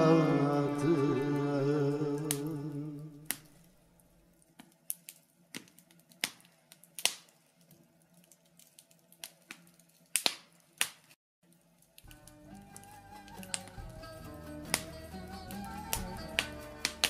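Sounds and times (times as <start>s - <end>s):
wood fire crackling: 1.3s - 17.0s
faint music: 11.5s - 17.0s.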